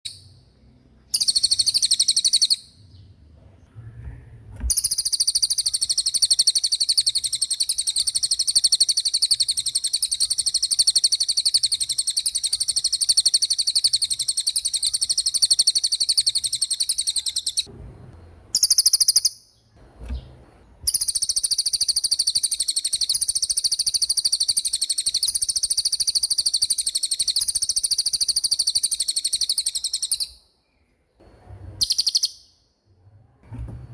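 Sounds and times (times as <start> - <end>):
songbird trilling: 1.1 - 2.7, 4.7 - 17.7, 18.6 - 19.4, 20.9 - 30.4, 31.8 - 32.5.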